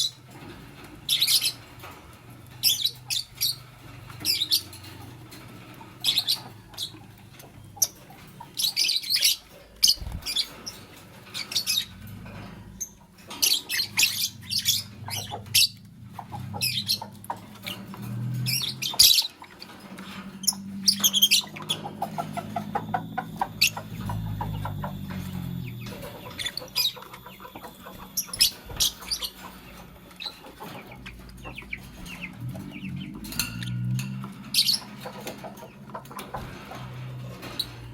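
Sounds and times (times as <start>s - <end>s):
lovebirds chirping: 0.0s - 36.8s
low steady hum: 11.8s - 37.8s.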